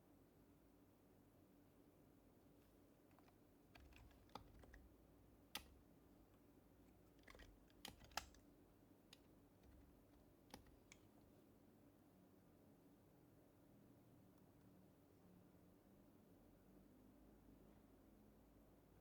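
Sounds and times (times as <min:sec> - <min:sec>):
soft keyboard keystrokes: 0:02.6 - 0:05.9, 0:06.8 - 0:08.5, 0:09.1 - 0:11.2.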